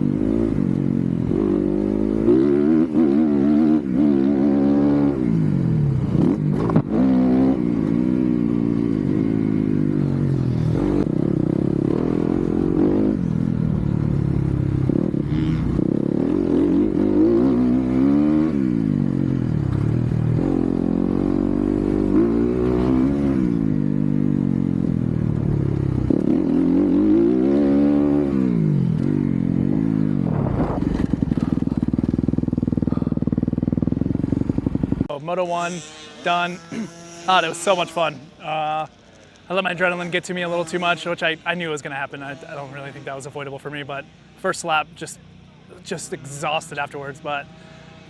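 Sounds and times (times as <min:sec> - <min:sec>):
dirt bike engine revving: 0:00.0 - 0:48.0.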